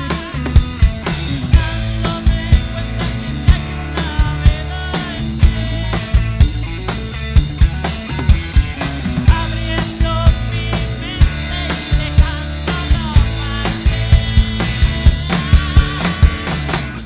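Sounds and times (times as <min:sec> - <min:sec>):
rock band playing live: 0:00.0 - 0:17.0
strong drum hits: 0:07.4 - 0:17.0.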